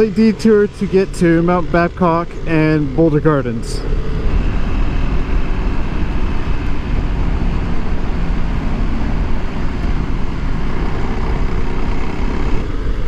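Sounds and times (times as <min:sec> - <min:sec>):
dirt bike engine running: 0:00.0 - 0:13.0
wind on microphone: 0:00.0 - 0:13.0.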